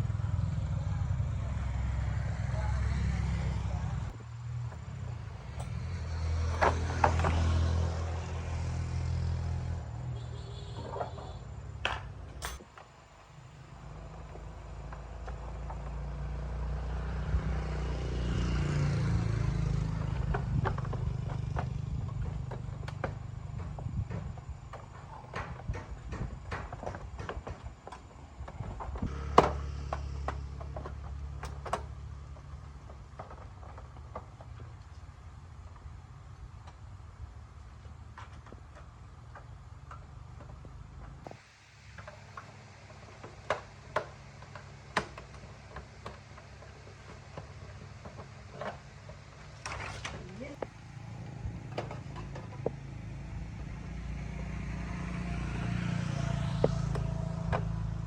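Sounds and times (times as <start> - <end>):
metallic clicks of tools: 12.4 - 12.6
small motorbike engine running: 13.8 - 27.3, 28.6 - 32.5, 43.0 - 58.0.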